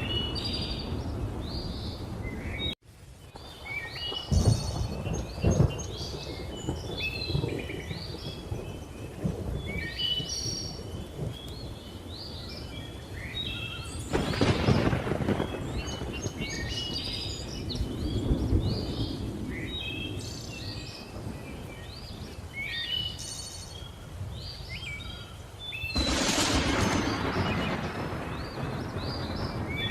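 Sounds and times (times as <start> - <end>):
birds chirping: 0.0 - 29.9
rolling thunder: 3.4 - 12.3, 13.6 - 22.4, 25.9 - 29.9.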